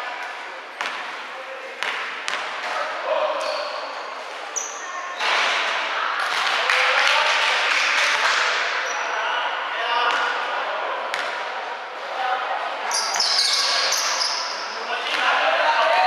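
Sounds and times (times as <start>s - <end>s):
shoes squeaking on court floor: 3.4s - 5.3s, 12.9s - 14.8s.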